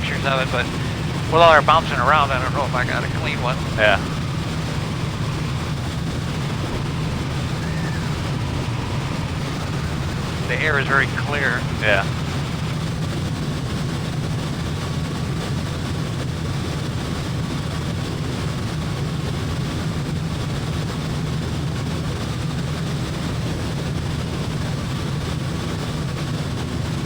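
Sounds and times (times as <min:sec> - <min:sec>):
faint steady whine: 0:00.0 - 0:17.0
airplane engine and propeller droning: 0:00.0 - 0:27.0.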